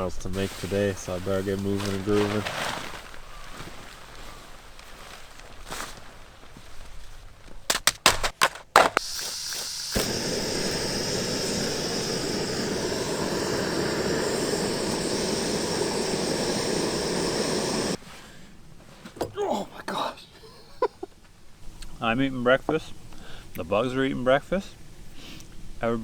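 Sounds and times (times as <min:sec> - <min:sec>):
gas burner hissing: 0:08.8 - 0:18.0
stove igniter clicks: 0:09.0 - 0:18.0.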